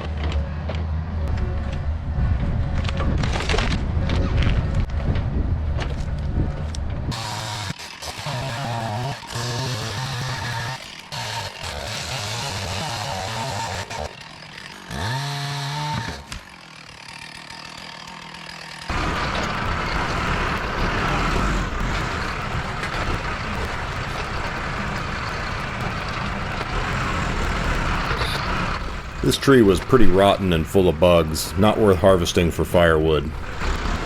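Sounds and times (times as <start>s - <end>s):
heavy diesel engine revving: 6.4s - 14.2s, 18.8s - 34.0s.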